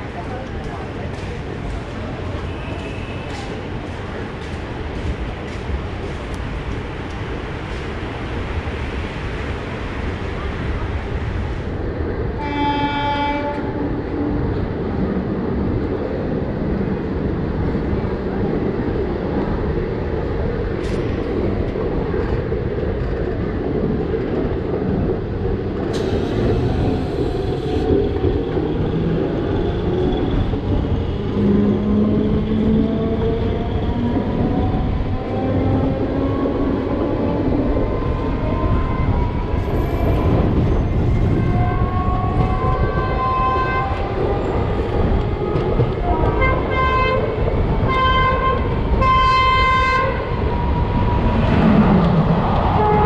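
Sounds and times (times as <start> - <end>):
train rolling rumble: 0.0 - 53.0
train horn blasts: 12.4 - 13.8, 46.2 - 47.3, 47.9 - 50.2.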